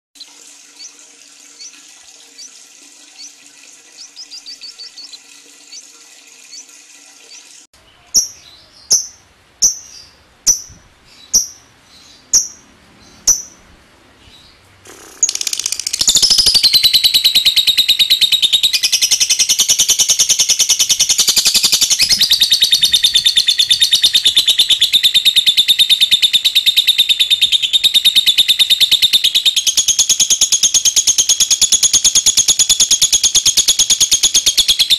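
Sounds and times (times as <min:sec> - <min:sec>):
bird chattering trill: 0:04.0 - 0:05.9, 0:08.1 - 0:11.7, 0:12.3 - 0:12.6, 0:13.2 - 0:13.6, 0:14.9 - 0:34.9
bird chirps: 0:04.0 - 0:05.9, 0:07.3 - 0:13.6, 0:14.2 - 0:34.9.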